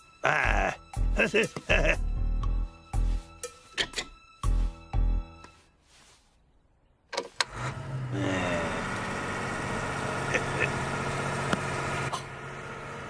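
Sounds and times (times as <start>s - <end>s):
car engine starting: 7.2s - 13.0s.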